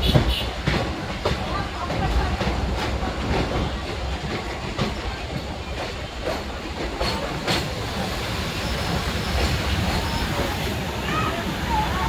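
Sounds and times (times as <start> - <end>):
train wheels rumbling on rails: 0.0 - 12.0
wheels clacking: 0.0 - 12.0.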